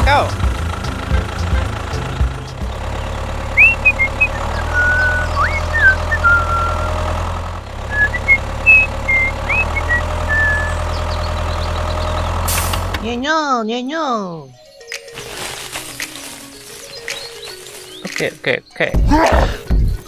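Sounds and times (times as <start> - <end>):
high whistling chirps: 3.5 - 7.0, 7.9 - 11.6.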